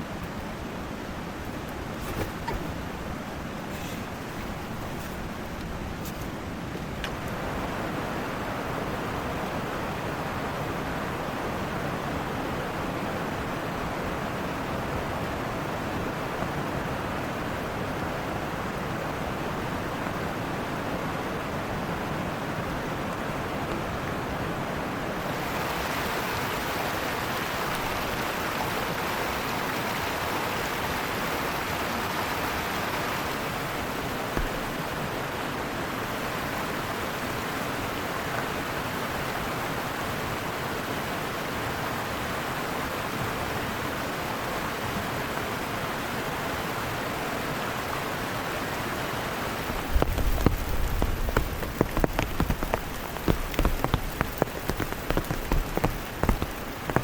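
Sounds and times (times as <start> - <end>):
heavy rain: 0.0 - 57.0
low thuds: 34.3 - 35.0.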